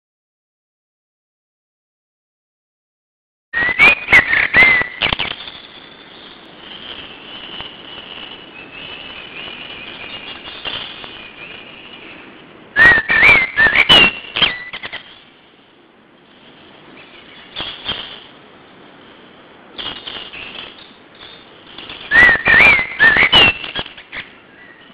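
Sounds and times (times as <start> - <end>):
soft bird twittering: 3.6 - 15.3, 16.6 - 18.1, 19.8 - 24.9
whistled gliding bird notes: 3.6 - 15.4, 16.6 - 18.3, 19.8 - 24.9
songbirds singing: 16.6 - 18.0, 19.8 - 24.9.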